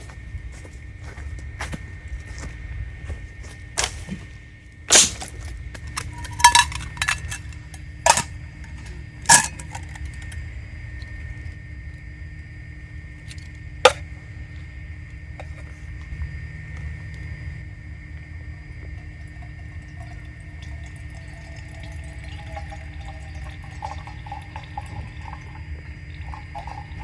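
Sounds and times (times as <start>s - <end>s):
low background hum: 0.0s - 27.0s
metallic clinks and knocks: 5.9s - 10.0s.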